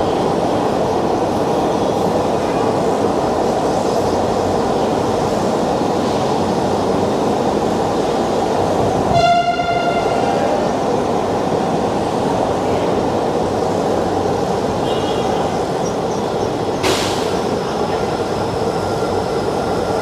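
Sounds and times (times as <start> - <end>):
metro train rumbling: 0.0 - 20.0
train horn: 9.1 - 10.6.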